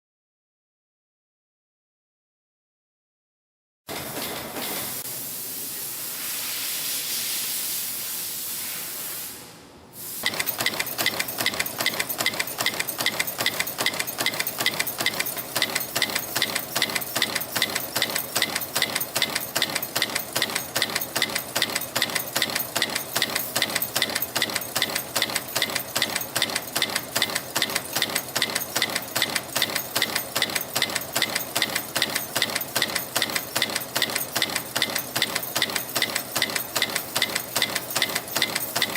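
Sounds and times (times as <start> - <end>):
stamping machine clattering: 10.2 - 38.9.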